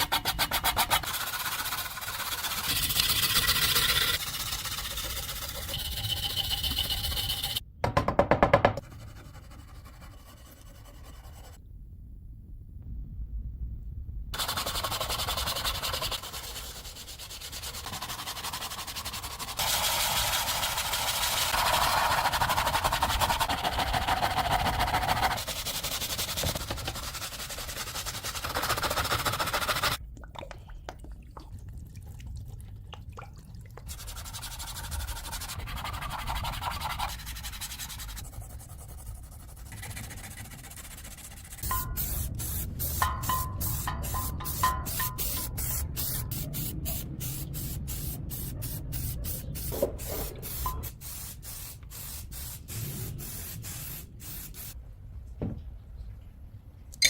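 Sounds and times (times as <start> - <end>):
abrasive sanding on rusted metal: 0.0 - 7.6, 14.4 - 30.0, 33.9 - 54.8.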